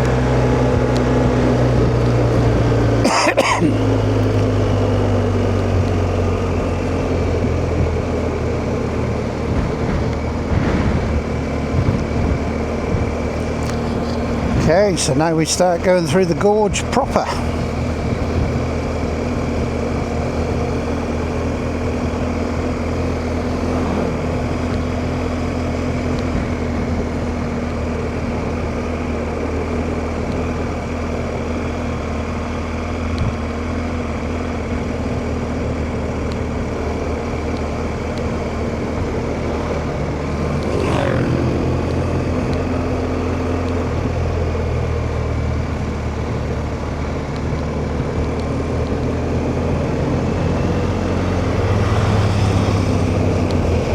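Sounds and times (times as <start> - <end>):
motorcycle engine running: 0.0 - 53.9
wind rush: 50.9 - 53.9
short falling sweep: 51.3 - 53.9.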